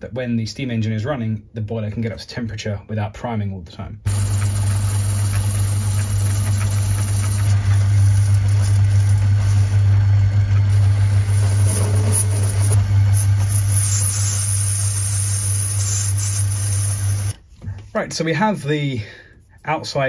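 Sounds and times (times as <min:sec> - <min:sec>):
metal lathe motor hum: 0:04.1 - 0:17.3.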